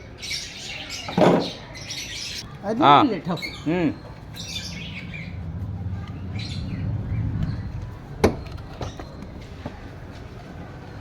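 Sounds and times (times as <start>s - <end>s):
birds chirping faintly: 0.0s - 11.0s
low steady rumble: 4.1s - 9.5s.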